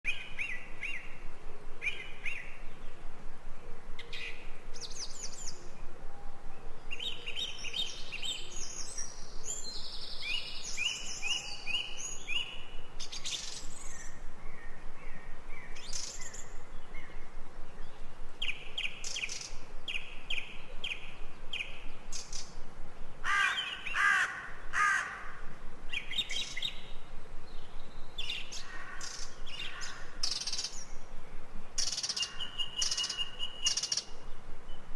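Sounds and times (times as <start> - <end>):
background hiss: 0.1 - 34.9
birds chirping and trilling: 0.1 - 34.9
harsh bird calls: 23.2 - 25.4, 28.2 - 30.8.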